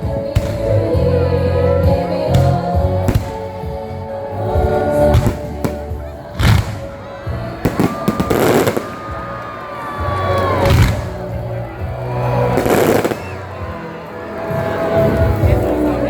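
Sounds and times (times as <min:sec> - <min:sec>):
background music: 0:00.0 - 0:16.0
fireworks bangs: 0:00.4 - 0:01.0, 0:02.1 - 0:04.0, 0:04.6 - 0:13.8
fireworks crackling burst: 0:02.4 - 0:03.9, 0:05.0 - 0:13.8.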